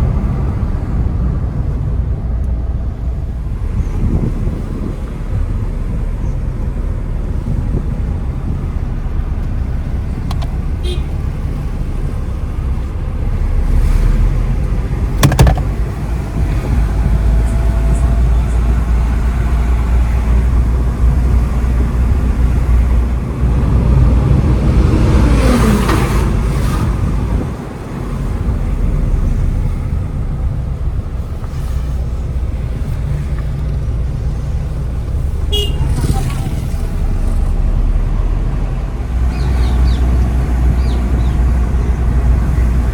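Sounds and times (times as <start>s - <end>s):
car engine and tyres rumbling: 0.0s - 42.9s
sharp knock: 15.2s - 15.8s.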